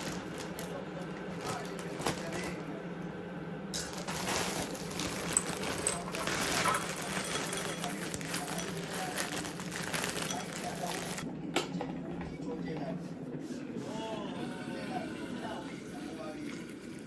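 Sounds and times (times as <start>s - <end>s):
metal cookware clinking: 4.9s - 11.3s.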